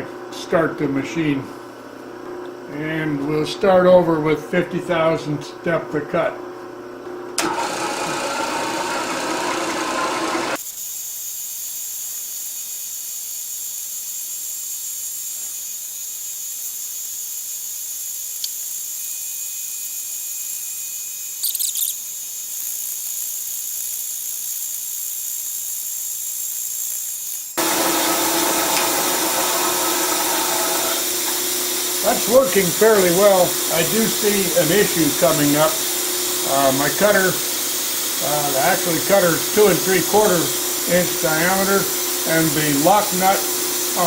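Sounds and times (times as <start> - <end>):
milling machine cutter whine: 7.4 - 10.6, 27.6 - 44.0.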